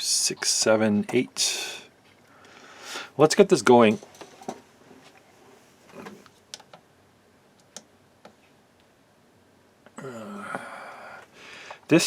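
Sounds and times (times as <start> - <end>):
small clicks and taps: 7.6 - 8.9.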